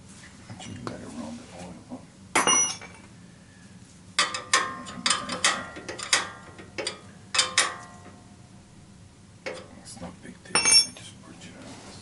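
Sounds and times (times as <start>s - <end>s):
metal tools clinking and knocking: 2.4s - 3.0s, 4.2s - 8.0s, 10.6s - 11.0s.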